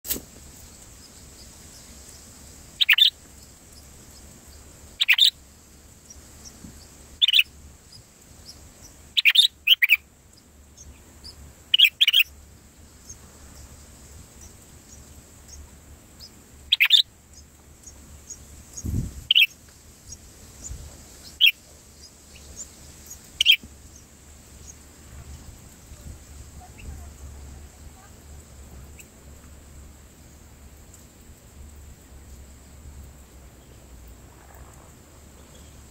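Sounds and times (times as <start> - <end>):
high bird chirps: 2.8 - 4.2, 5.0 - 5.4, 6.4 - 10.0, 10.8 - 12.4, 16.2 - 24.8.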